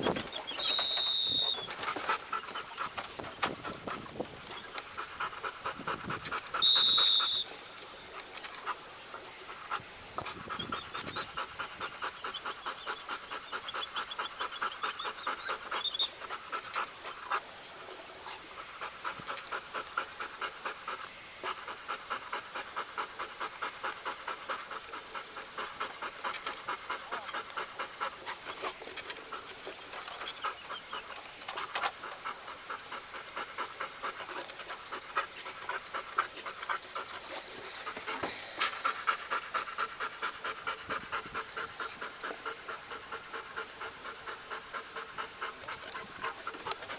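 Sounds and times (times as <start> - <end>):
dog panting: 0.0 - 7.5, 8.1 - 46.9
short high-pitched tone: 6.6 - 7.5.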